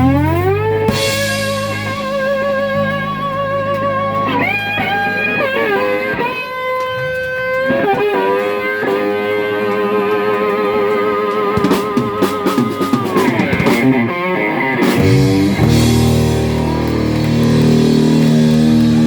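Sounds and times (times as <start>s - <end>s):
steady bass: 0.0s - 6.0s, 14.9s - 19.0s
electric guitar lead: 0.0s - 19.0s.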